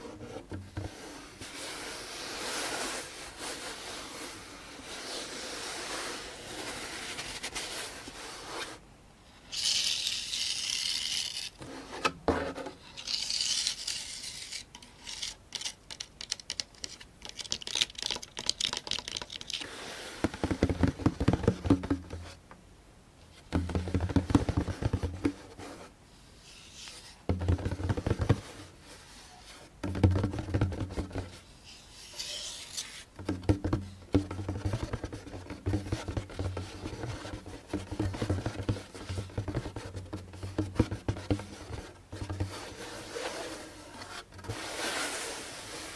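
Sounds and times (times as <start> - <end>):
fingertip tapping on drumhead: 20.2 - 22.3, 23.5 - 25.4.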